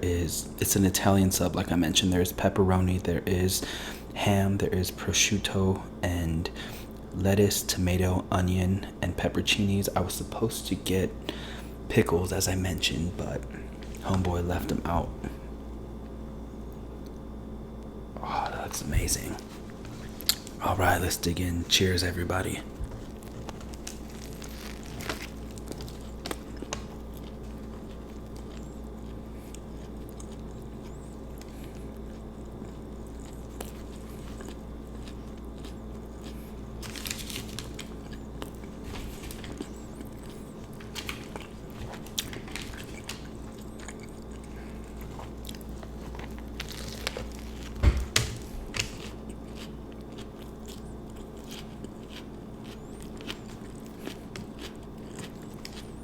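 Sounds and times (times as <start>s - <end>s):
crunchy wet chewing: 22.6s - 56.0s
biting into sandwich: 22.8s - 56.0s.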